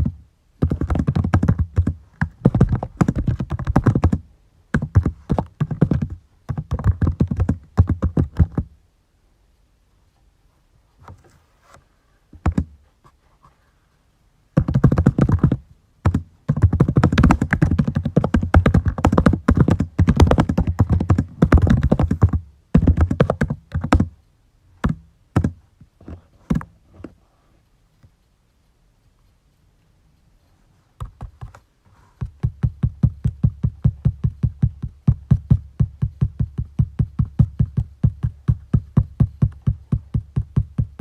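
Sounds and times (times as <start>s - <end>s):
typing on keyboard: 0.0s - 4.2s, 4.8s - 8.7s, 12.4s - 12.7s, 14.6s - 24.1s, 24.8s - 25.6s.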